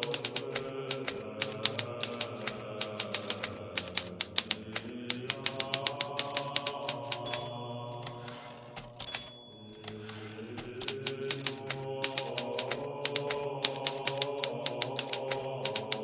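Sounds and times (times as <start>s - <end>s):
typewriter keys striking: 0.0s - 16.0s
high ringing tone: 7.3s - 10.3s.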